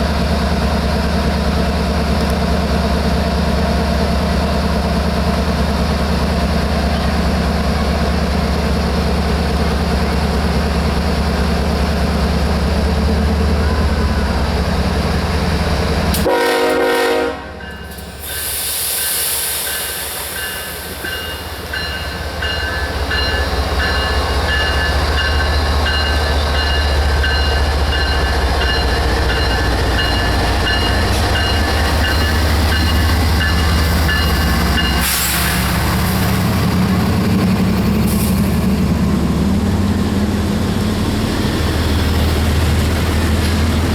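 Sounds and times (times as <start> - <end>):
diesel locomotive rumble: 0.0 - 43.9
locomotive horn: 16.1 - 17.8.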